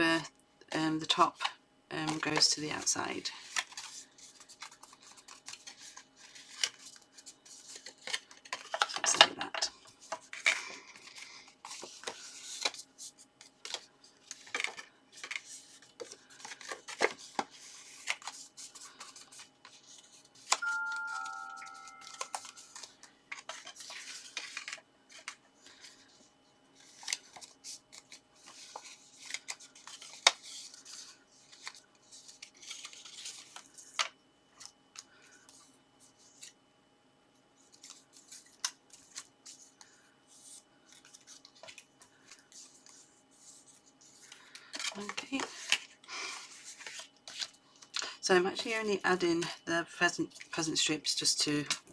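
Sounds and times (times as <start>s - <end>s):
card rustling and creasing: 2.0s - 36.6s, 37.6s - 48.0s
two-note descending chime: 20.6s - 22.6s.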